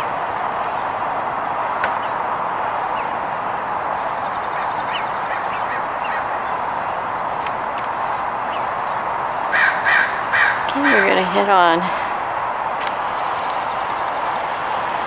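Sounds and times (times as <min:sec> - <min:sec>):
steady rushing noise: 0:00.0 - 0:15.0
faint bird chirps: 0:03.9 - 0:11.1, 0:13.0 - 0:15.0
harsh caw-like bird calls: 0:03.9 - 0:11.2, 0:13.0 - 0:15.0.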